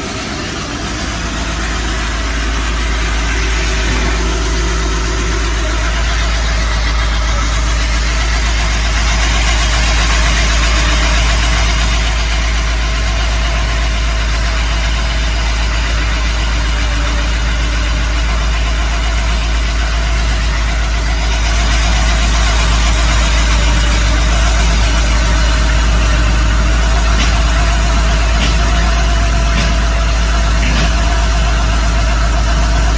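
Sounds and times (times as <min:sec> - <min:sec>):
hydraulic drill boring into rock: 0:00.0 - 0:14.0, 0:21.3 - 0:32.9
diesel engine running: 0:00.0 - 0:32.9.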